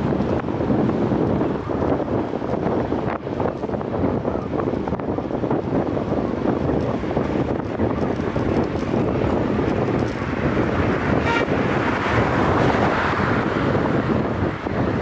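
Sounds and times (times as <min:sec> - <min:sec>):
traffic noise: 0:00.0 - 0:15.0
wind rushing over microphone: 0:00.0 - 0:15.0
vehicle horn toot: 0:11.1 - 0:11.6.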